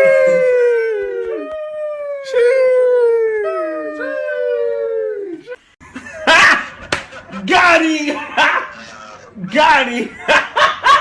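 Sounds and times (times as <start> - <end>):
dog howling: 0.0 - 5.5.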